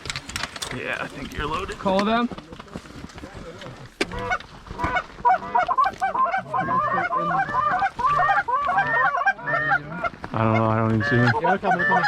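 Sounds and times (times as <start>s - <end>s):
geese honking and clucking: 4.0s - 12.0s.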